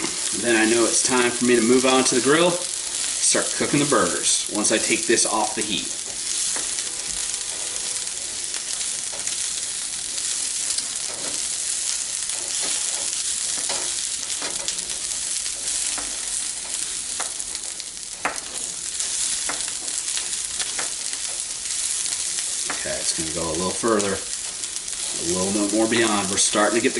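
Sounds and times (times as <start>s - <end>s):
onions sizzling in a pan: 0.0s - 26.9s
spatula scraping a pan: 6.0s - 17.8s.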